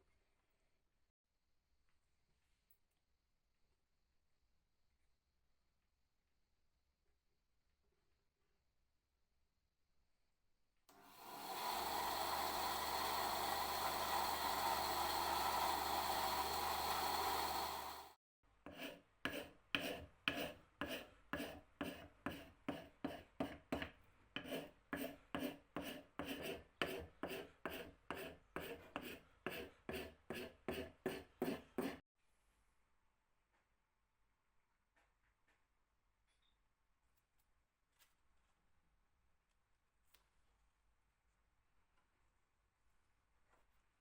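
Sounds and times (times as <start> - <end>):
power tool running: 10.9 - 18.2
hand rasping wood: 11.2 - 18.0, 18.7 - 32.0.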